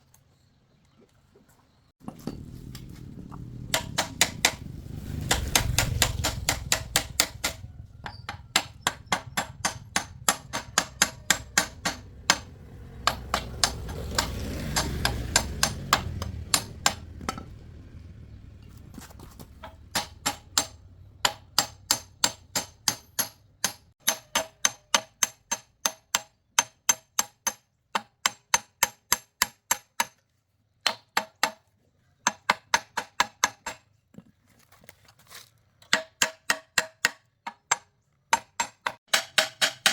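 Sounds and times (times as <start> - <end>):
low rumble: 2.0 - 21.2
ringing hammer blows on metal: 3.7 - 17.5.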